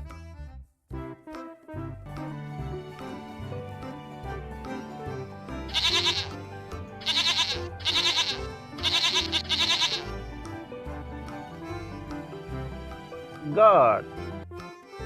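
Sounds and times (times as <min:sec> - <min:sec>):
background music: 0:00.0 - 0:15.0
goat bleating: 0:05.7 - 0:06.4, 0:07.0 - 0:10.2.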